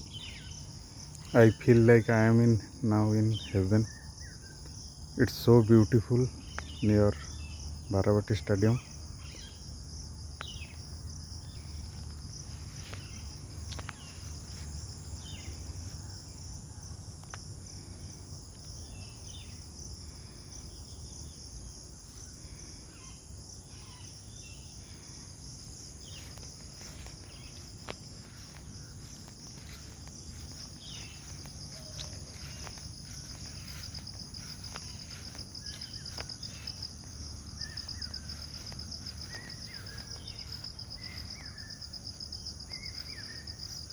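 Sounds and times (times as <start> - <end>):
insects trilling: 0.0 - 43.9
bird chirps: 30.3 - 43.9.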